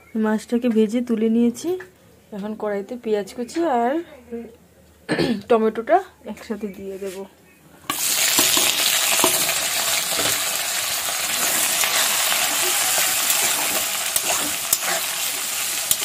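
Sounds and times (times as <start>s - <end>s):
vegetables sizzling in hot oil: 7.9s - 16.0s
spatula scraping pan: 11.2s - 16.0s.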